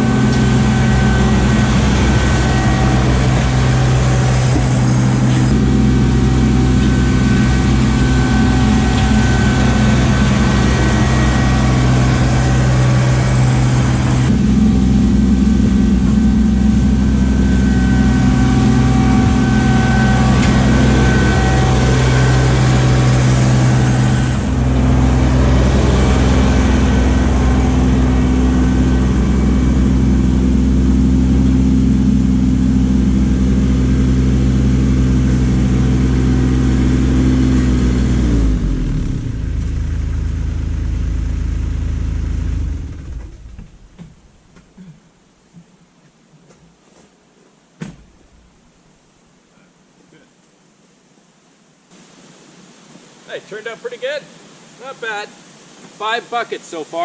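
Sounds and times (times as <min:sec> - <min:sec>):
tractor diesel engine running: 0:00.0 - 0:44.5.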